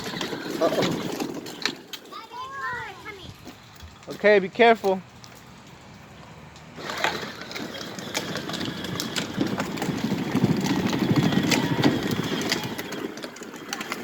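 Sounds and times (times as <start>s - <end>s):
plastic wheels rolling crackle: 0.0s - 14.0s
toy car motor running: 6.8s - 14.0s.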